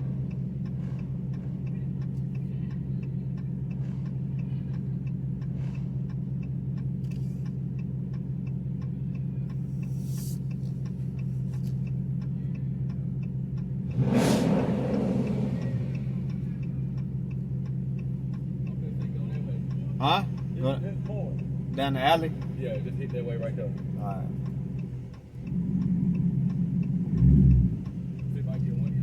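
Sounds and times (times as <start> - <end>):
car engine idling: 0.0 - 29.0
faint engine ticking: 0.0 - 29.0.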